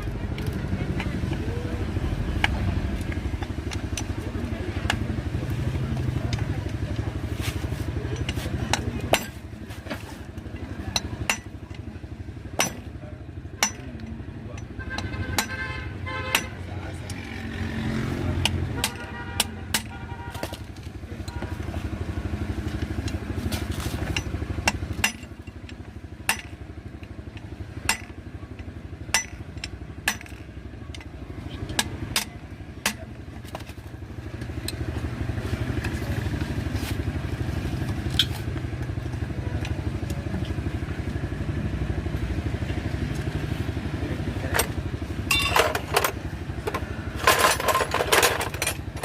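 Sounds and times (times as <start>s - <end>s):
motorcycle engine running: 0.0s - 49.0s
sharp metallic clinks: 45.3s - 46.1s.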